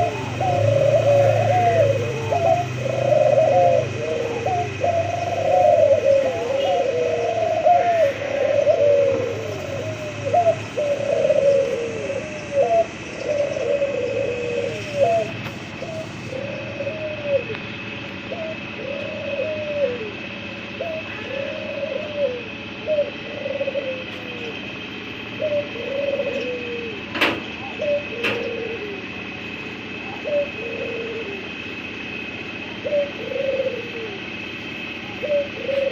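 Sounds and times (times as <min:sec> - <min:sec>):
dove cooing: 0:00.0 - 0:35.9
steady high whine: 0:00.0 - 0:35.9.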